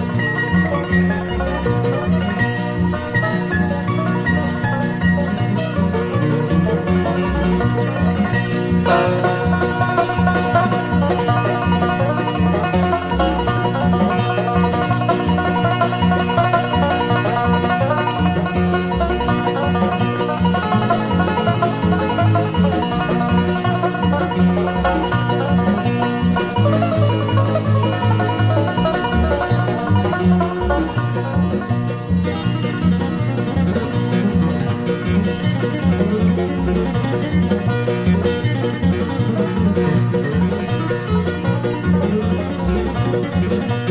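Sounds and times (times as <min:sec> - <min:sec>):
banjo: 0:00.0 - 0:43.9
guitar: 0:00.0 - 0:43.9
mandolin: 0:00.0 - 0:43.9
bass beat: 0:03.2 - 0:33.7.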